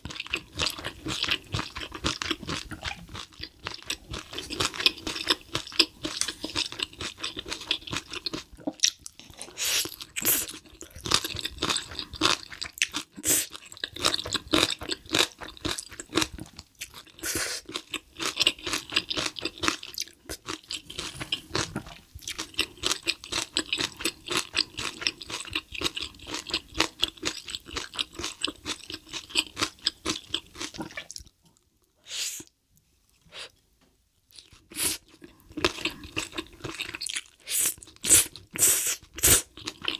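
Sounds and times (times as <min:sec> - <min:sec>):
close chewing with wet crunches: 0:00.0 - 0:31.3.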